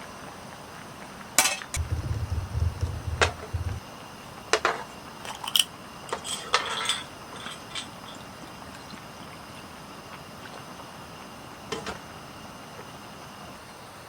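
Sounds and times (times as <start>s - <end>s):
low rumble of handling: 1.8s - 3.8s.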